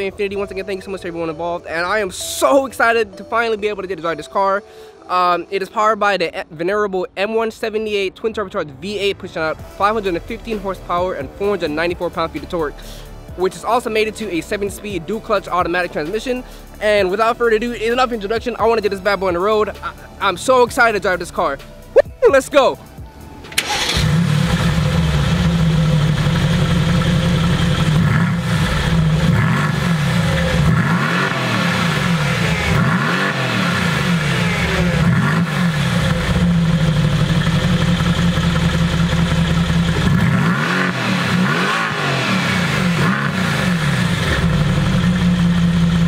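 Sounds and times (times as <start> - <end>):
car engine idling and revving: 22.9 - 46.0.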